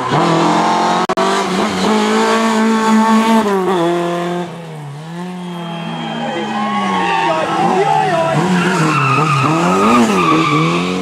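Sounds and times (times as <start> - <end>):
rally car engine revving: 0.0 - 11.0
tyres squealing: 5.4 - 11.0.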